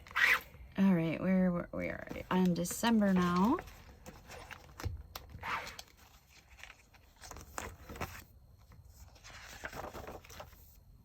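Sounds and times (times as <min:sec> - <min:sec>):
paper pages rustling: 0:02.1 - 0:10.8.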